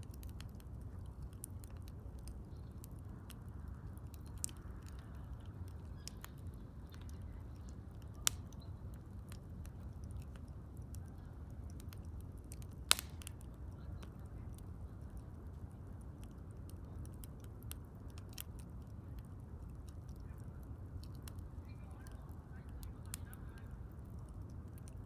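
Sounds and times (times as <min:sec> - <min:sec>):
low fire rumble: 0:00.0 - 0:25.0
wood fire crackling: 0:00.0 - 0:25.0
sharp fire pops: 0:04.1 - 0:10.5, 0:11.7 - 0:14.1.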